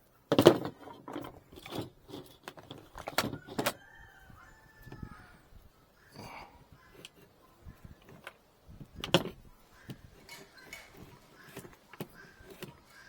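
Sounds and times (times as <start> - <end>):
wooden frames knocking and scraping: 0.3 - 4.1, 6.9 - 13.0
thin squeak: 9.8 - 13.0.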